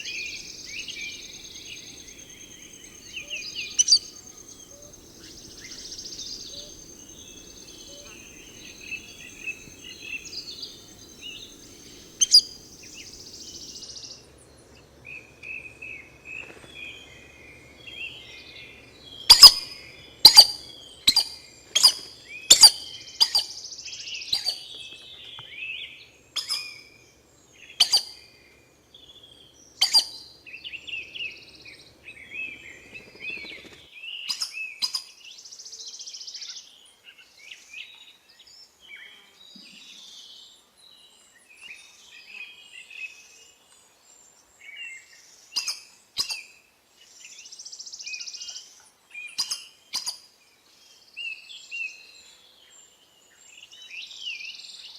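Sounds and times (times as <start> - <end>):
wild birds chirping: 0.0 - 14.2.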